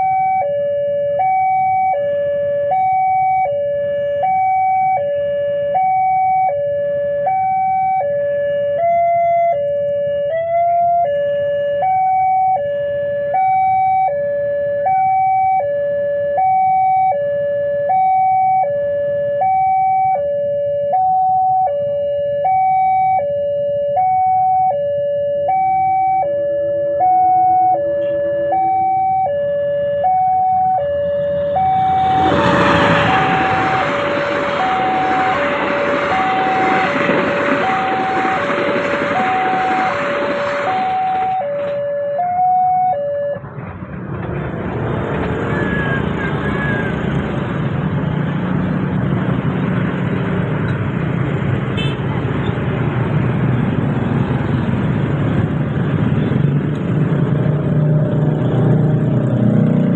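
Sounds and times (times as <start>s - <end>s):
two-tone crossing alarm: 0.0s - 43.4s
train rushing and rumbling: 31.0s - 41.9s, 43.4s - 59.9s.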